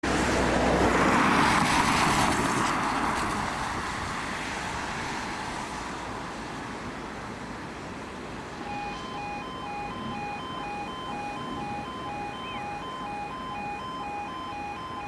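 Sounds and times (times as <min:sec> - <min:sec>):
car passing by: 0:00.0 - 0:07.5.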